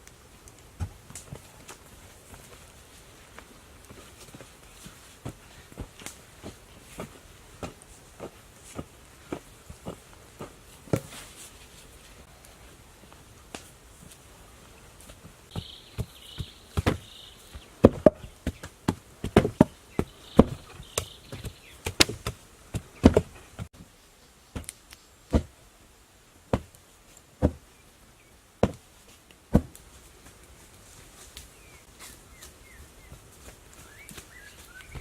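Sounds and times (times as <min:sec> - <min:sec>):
sharp wooden knocks: 0:17.8 - 0:23.3.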